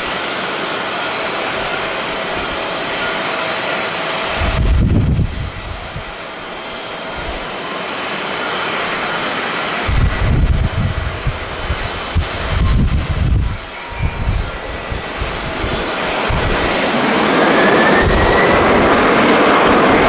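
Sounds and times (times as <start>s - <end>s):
jet engine rushing: 0.0s - 20.0s
wind buffeting microphone: 4.0s - 7.5s, 9.8s - 20.0s.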